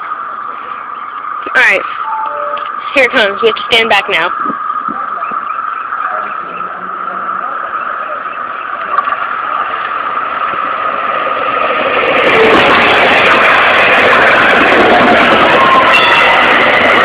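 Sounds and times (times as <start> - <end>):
steady high tone: 0.0 - 9.6, 14.7 - 17.0
light rail train passing: 0.0 - 17.0.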